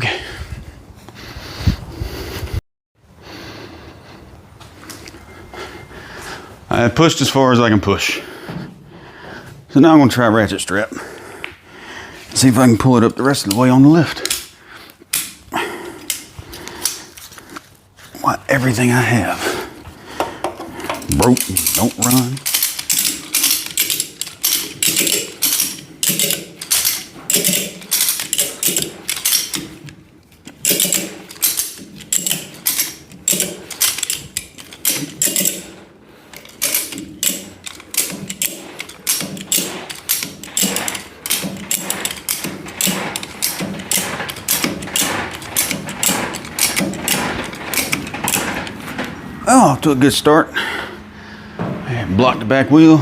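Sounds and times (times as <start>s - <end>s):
ratchet strap pawl clicking: 20.9s - 35.7s, 36.3s - 48.8s.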